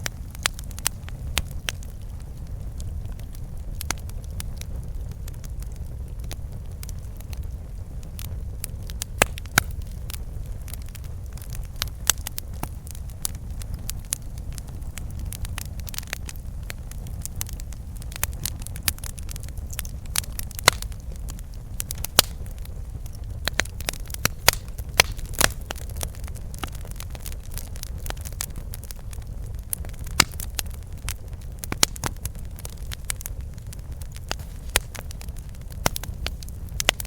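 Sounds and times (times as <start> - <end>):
fire crackling and popping: 0.0 - 37.0
low rumble of flames: 0.0 - 37.0.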